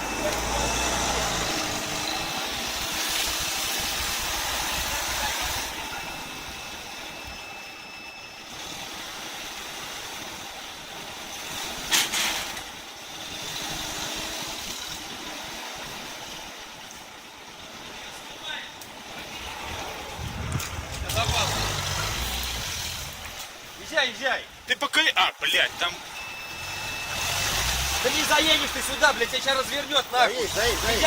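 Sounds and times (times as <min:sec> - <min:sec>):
car engine running: 0:00.0 - 0:06.0, 0:19.5 - 0:23.6, 0:25.8 - 0:31.0.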